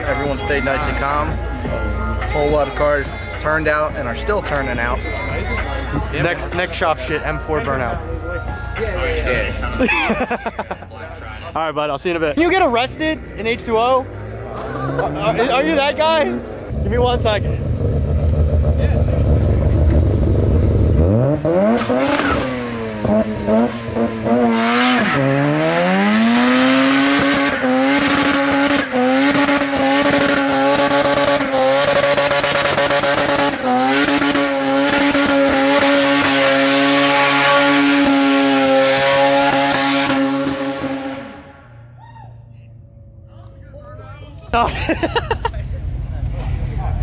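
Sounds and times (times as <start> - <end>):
car engine revving: 12.4 - 41.9.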